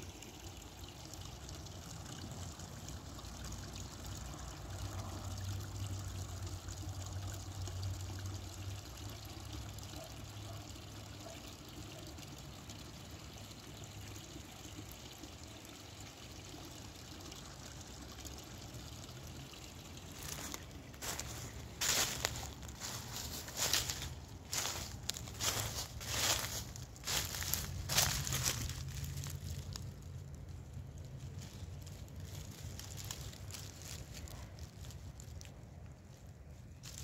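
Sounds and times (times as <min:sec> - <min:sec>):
creek water trickling: 0:00.0 - 0:37.0
footsteps on forest floor: 0:20.1 - 0:35.5, 0:36.7 - 0:37.0.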